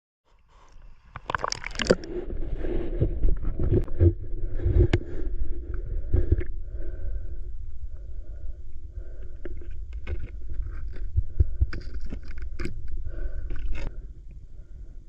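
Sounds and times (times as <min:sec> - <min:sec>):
muffled underwater water rumble: 0:00.5 - 0:15.0
sharp underwater clicks and knocks: 0:09.4 - 0:13.9.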